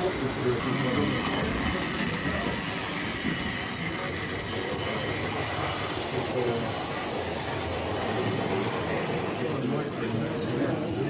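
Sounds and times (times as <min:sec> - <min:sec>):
model train running on track: 0:00.0 - 0:11.0.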